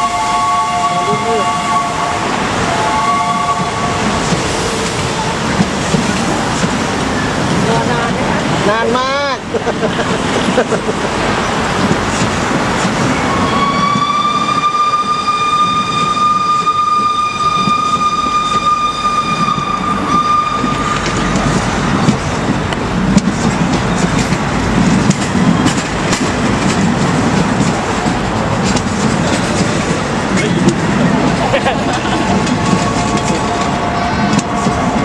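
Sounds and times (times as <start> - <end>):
train wheels rumbling on rail: 0.0 - 35.0
wheels clacking over rail joints: 19.5 - 35.0.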